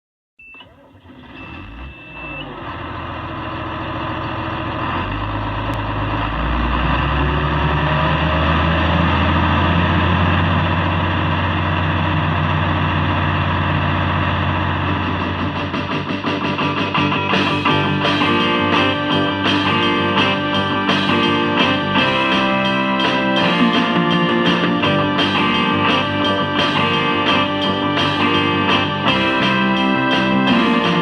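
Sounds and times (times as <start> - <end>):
heavy engine droning: 0.7 - 16.4
short high beep: 1.4 - 2.5.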